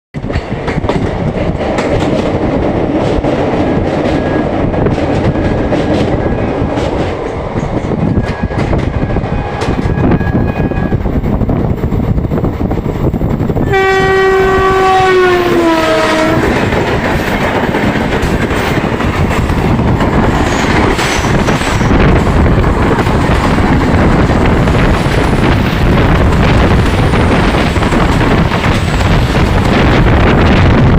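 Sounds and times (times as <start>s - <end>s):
train rumbling on track: 0.1s - 30.9s
passing train rushing: 0.2s - 30.9s
locomotive horn blaring: 13.6s - 16.7s.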